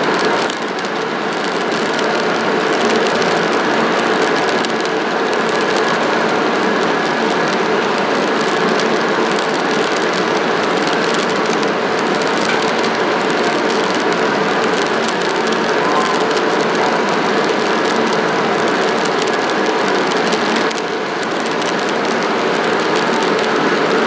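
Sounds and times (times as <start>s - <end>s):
faint clicks: 7.3s - 24.0s.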